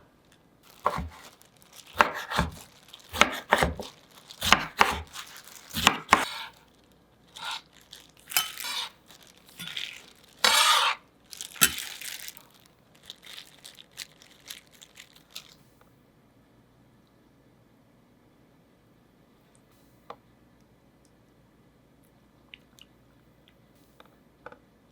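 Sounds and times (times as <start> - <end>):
dishes and utensils clinking: 8.3 - 8.9, 9.6 - 11.0, 11.6 - 12.0.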